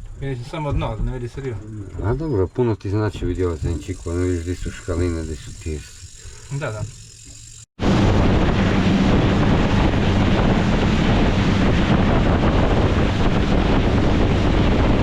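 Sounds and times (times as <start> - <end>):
low engine hum: 6.8 - 15.0
wind buffeting microphone: 7.8 - 15.0.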